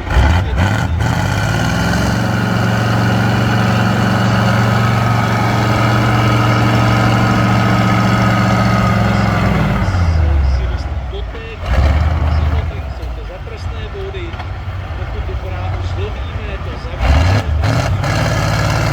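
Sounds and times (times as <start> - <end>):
heavy truck engine running: 0.0 - 18.9.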